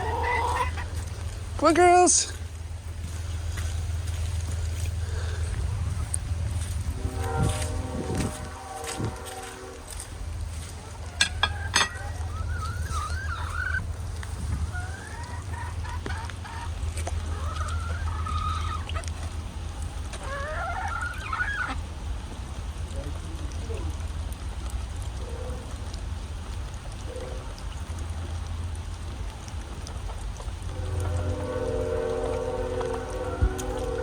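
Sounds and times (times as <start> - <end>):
steady low rumble: 0.0 - 1.6, 2.3 - 20.1, 27.6 - 34.0
hens clucking: 0.0 - 2.1, 10.6 - 19.4, 20.1 - 21.8.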